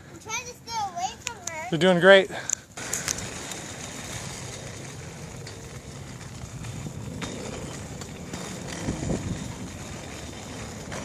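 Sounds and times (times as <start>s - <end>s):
bicycle tyres rolling on pavement: 0.0s - 11.0s
low bumps: 2.8s - 11.0s
wind on microphone: 4.8s - 10.9s.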